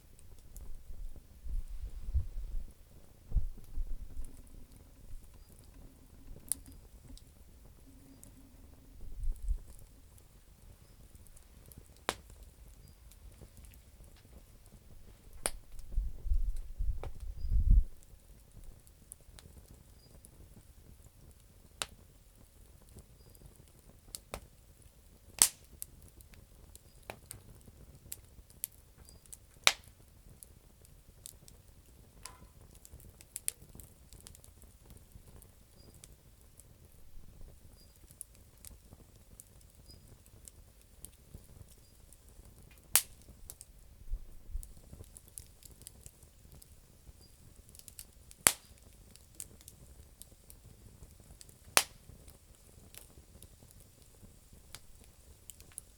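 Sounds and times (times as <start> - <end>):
low rumble: 0.0 - 10.0
campfire crackling: 0.0 - 55.9
sharp pops of burning wood: 0.0 - 55.9.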